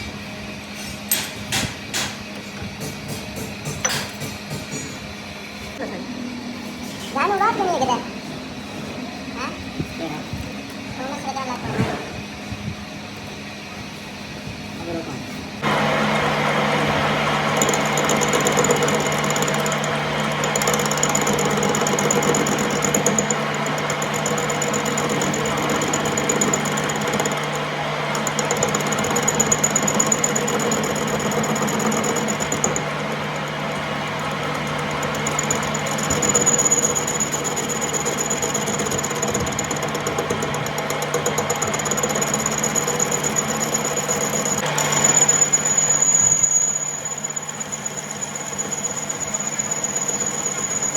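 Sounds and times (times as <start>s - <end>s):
machine tool humming: 15.6s - 50.9s
thin high whine: 42.7s - 50.9s.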